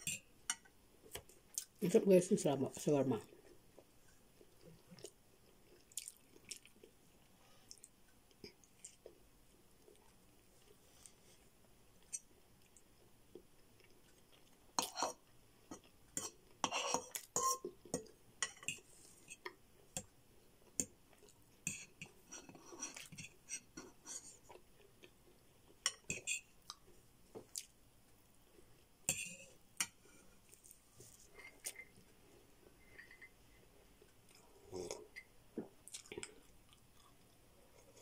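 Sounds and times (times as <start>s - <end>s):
chewing and mouth smacking: 4.6s - 7.0s, 34.3s - 38.0s.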